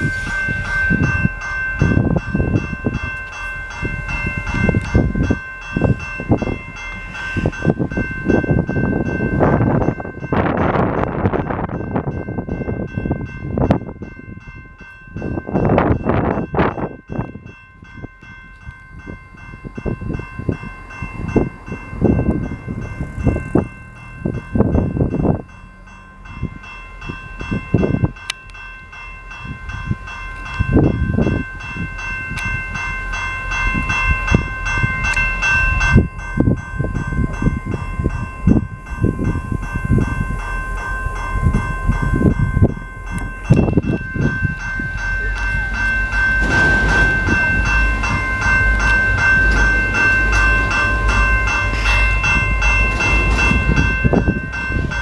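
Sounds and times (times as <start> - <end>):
freight train rumble: 0.0 - 55.0
level-crossing bell ringing: 0.0 - 55.0
wheels thumping on rails: 45.4 - 55.0.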